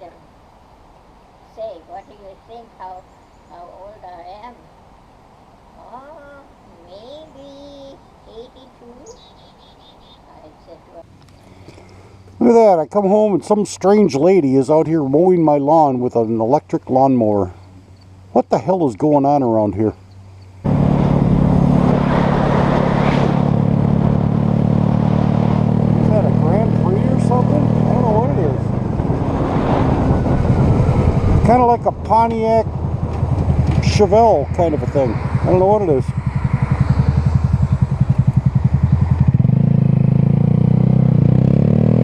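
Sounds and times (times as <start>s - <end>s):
vehicle engine idling: 23.5s - 29.2s, 30.1s - 40.7s.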